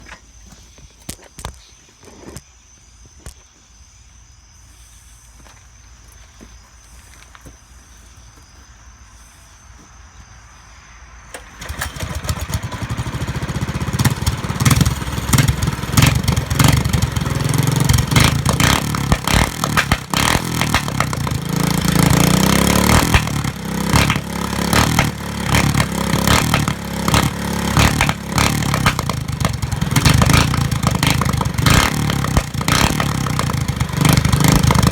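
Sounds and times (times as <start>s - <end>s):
exhaust pops: 11.3s - 34.9s
mini bike engine running rough: 11.3s - 34.9s.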